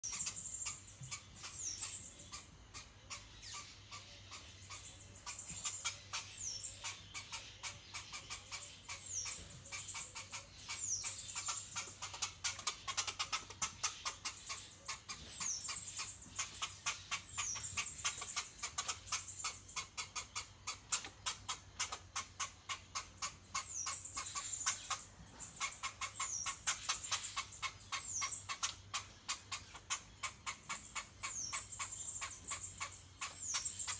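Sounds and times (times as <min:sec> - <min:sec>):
small animal squeaking: 0:00.0 - 0:33.9.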